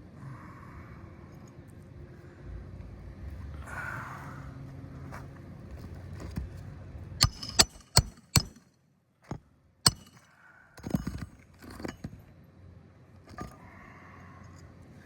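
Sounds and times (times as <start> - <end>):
hand tool striking nails: 7.2 - 8.6, 9.9 - 10.2, 10.8 - 12.2.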